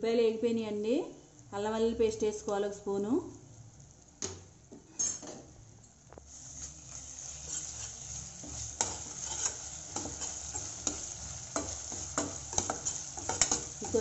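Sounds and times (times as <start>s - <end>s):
onions sizzling in hot oil: 1.6s - 14.0s
metal spoon scraping a pan: 4.9s - 5.3s, 6.5s - 14.0s.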